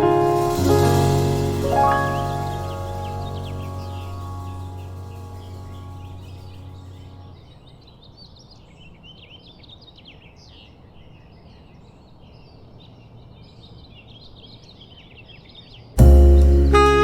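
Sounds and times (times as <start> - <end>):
music track: 0.0 - 7.3, 16.0 - 17.0
faint background hiss: 0.0 - 7.5
small birds chirping: 0.6 - 16.8.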